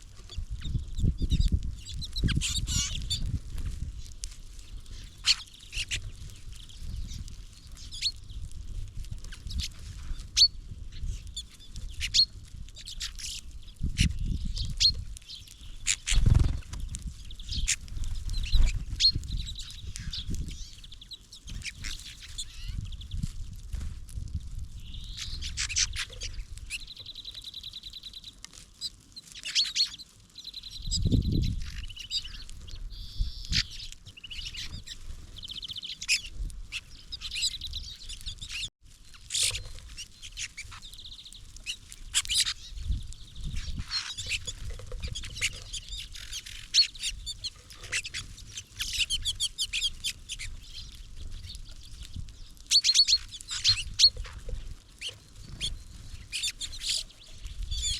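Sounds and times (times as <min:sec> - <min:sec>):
songbirds chirping: 0:00.1 - 0:23.4, 0:24.6 - 0:57.9
bird trills: 0:01.8 - 0:03.2, 0:04.9 - 0:08.4, 0:17.3 - 0:23.2, 0:29.4 - 0:52.0, 0:52.7 - 0:57.9.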